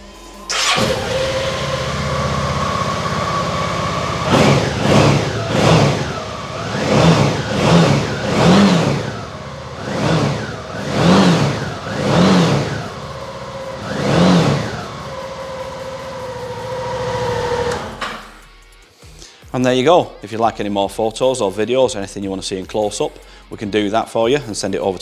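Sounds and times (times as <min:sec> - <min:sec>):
motorcycle engine idling and revving: 0:00.4 - 0:18.4.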